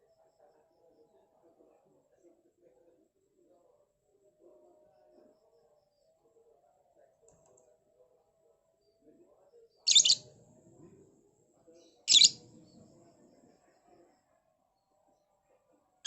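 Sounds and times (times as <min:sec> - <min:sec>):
bird shrill chirps: 0:09.9 - 0:10.3, 0:12.1 - 0:12.4.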